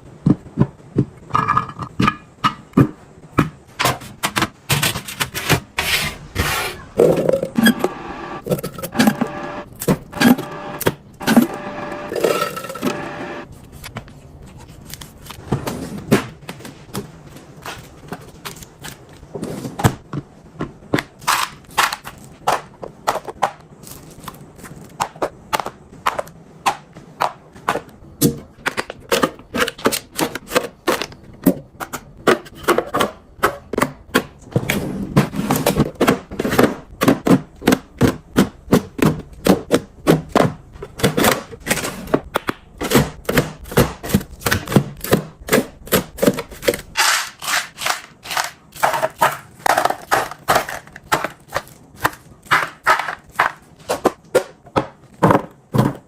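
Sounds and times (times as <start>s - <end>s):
plastic containers clicking and knocking: 0.2s - 5.7s, 19.8s - 56.0s.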